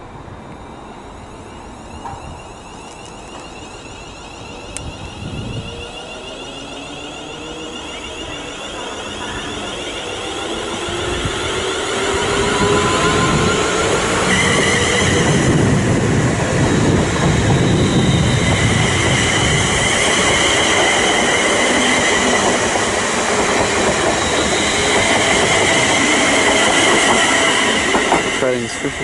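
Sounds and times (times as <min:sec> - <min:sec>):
train wheel and rail noise: 0:00.0 - 0:29.0.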